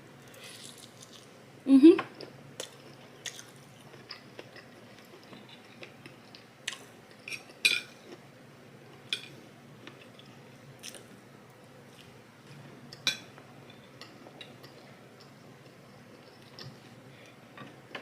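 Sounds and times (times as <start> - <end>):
cutlery clinking on a plate: 7.3 - 8.0.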